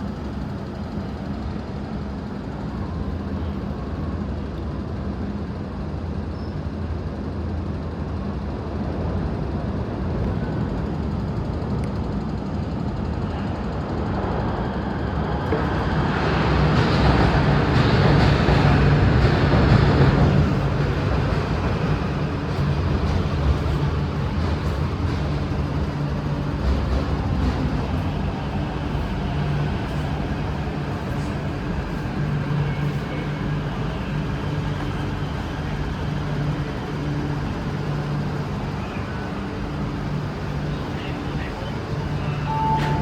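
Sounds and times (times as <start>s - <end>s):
electric train rumbling: 0.0s - 43.0s
train motor hum: 15.4s - 43.0s.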